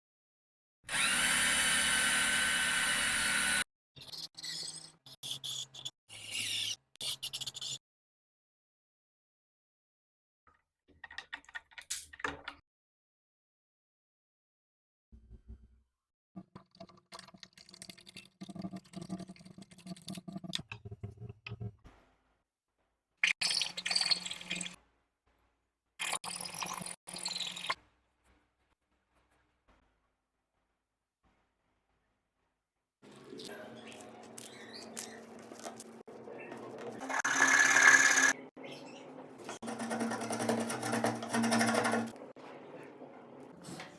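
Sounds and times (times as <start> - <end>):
power tool motor whining: 0.9 - 3.6, 37.0 - 38.4.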